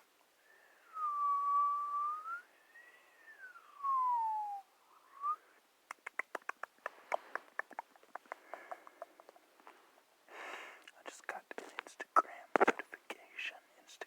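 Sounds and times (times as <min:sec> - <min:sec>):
rising whistle-like tone: 0:00.9 - 0:05.4
sharp quick clicks and taps: 0:05.9 - 0:09.8, 0:12.5 - 0:13.0.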